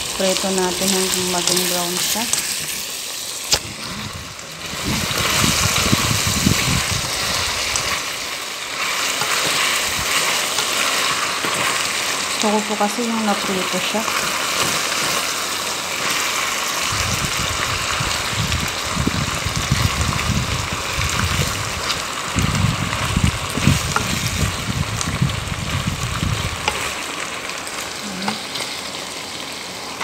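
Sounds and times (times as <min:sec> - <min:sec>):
chicken sizzling in a pan: 0:00.0 - 0:30.0
spatula scraping a pan: 0:08.8 - 0:11.8.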